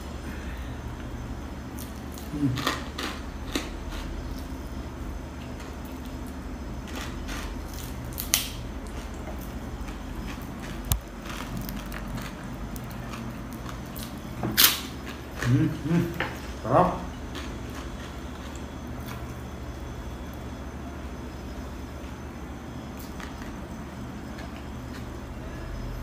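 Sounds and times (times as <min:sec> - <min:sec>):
steady low hum: 0:00.0 - 0:26.0
pork rinds crunching when bitten: 0:01.8 - 0:04.4, 0:05.9 - 0:15.9.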